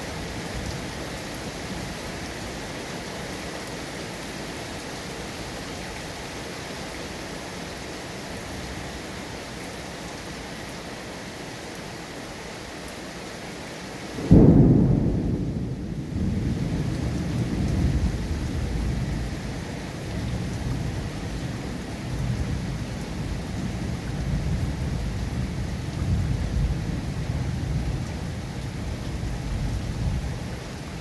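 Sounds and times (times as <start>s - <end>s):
rain falling: 0.0s - 31.0s
thunder clap and rumble: 14.2s - 21.5s, 23.4s - 30.3s.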